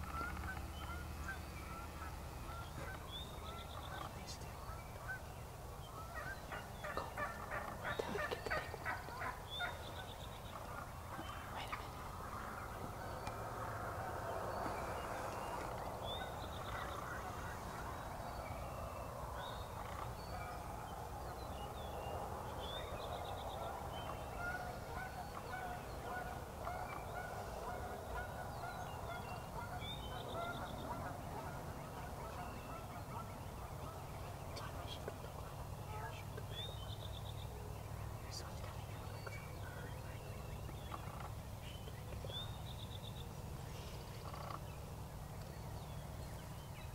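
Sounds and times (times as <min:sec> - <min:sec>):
turkey gobbling: 0:00.0 - 0:05.3, 0:06.0 - 0:11.6, 0:24.1 - 0:34.0, 0:40.8 - 0:41.4, 0:44.2 - 0:44.7.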